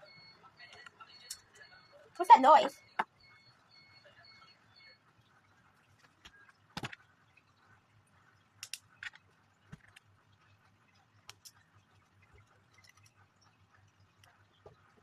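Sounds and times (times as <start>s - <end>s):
plastic lego pieces clicking: 8.6s - 10.0s.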